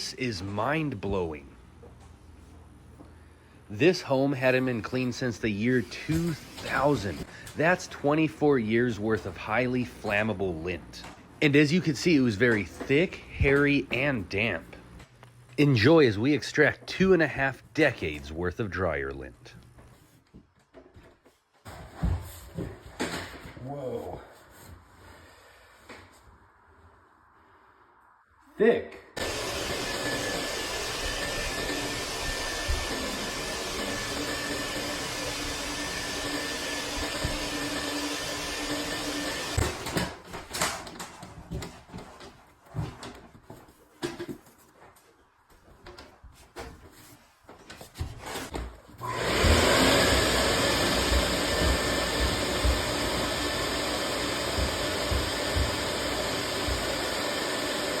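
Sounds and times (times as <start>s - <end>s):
vent cleaning machine running: 29.2s - 39.9s, 49.0s - 58.0s
vacuum blower whirring: 29.2s - 40.2s, 49.0s - 58.0s.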